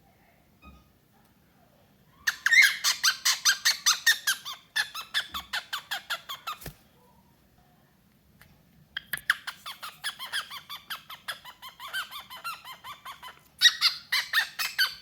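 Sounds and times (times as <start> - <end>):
parrot calling: 2.2 - 6.6, 9.0 - 15.0.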